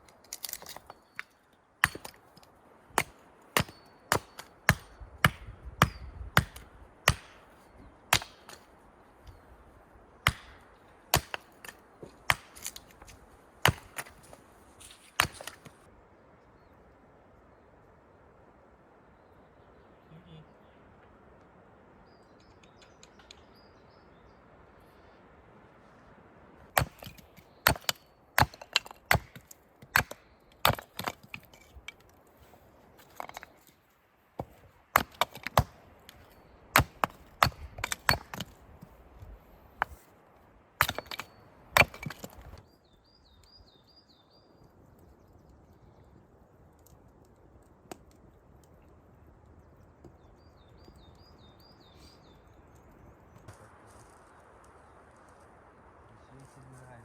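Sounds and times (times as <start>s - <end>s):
wood cracking under blows: 0.0s - 5.4s, 10.2s - 15.8s, 26.7s - 40.1s, 40.8s - 42.7s
bird chirping: 21.8s - 25.2s, 42.6s - 46.2s, 49.5s - 53.6s.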